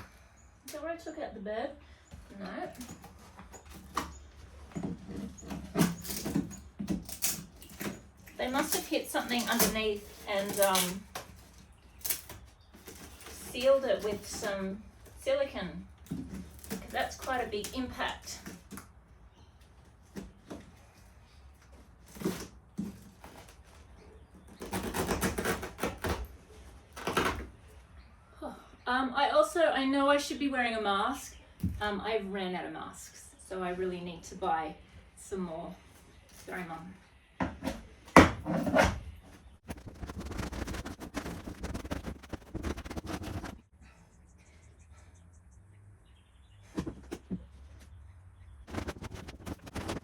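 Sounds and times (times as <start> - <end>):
scraping: 38.5 - 43.6, 48.7 - 50.0
rapid rattling clatter: 39.6 - 43.6, 48.7 - 50.0.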